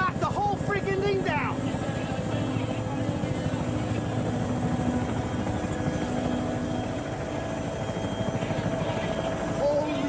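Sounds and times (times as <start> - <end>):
helicopter engine whine: 0.0 - 10.0
helicopter rotor beating: 0.0 - 10.0.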